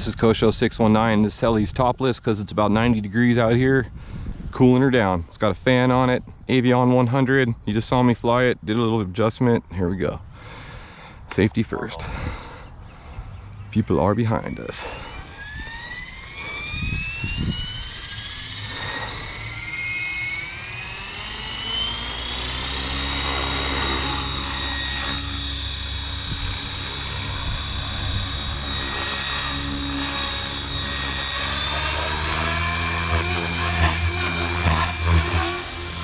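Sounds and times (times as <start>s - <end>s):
low rotor hum: 9.6s - 36.0s
electric motor whine: 12.1s - 36.0s.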